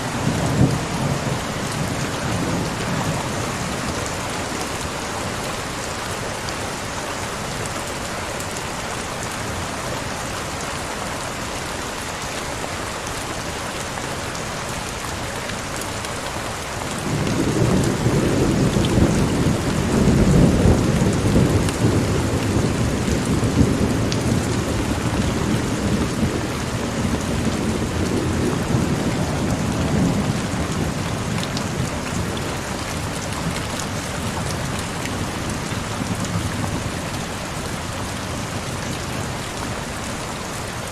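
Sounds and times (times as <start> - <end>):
heavy rain: 0.0 - 40.9
rolling thunder: 17.0 - 32.3.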